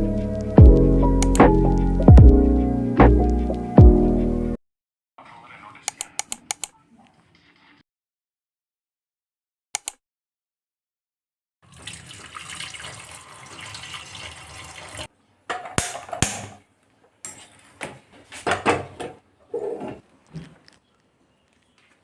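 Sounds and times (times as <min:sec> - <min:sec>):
water running from a tap: 0:11.6 - 0:15.1.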